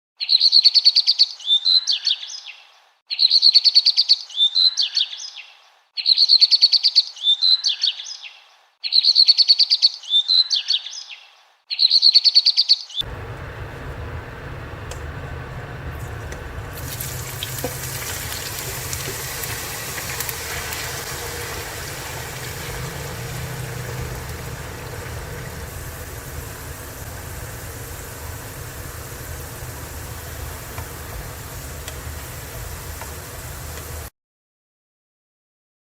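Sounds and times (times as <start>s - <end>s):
bird chirping and singing: 0.2s - 13.0s
noisy hum with low drone: 13.0s - 34.1s.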